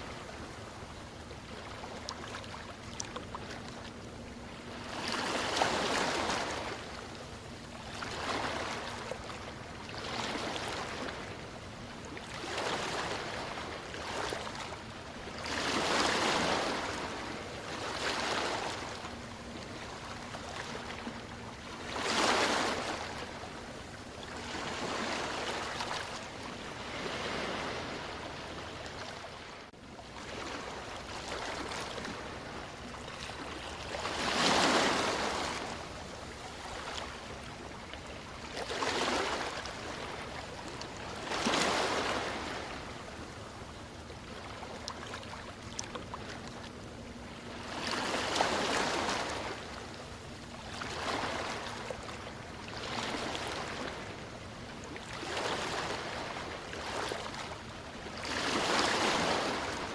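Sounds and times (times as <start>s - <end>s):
sea waves washing in: 15.3s - 37.7s.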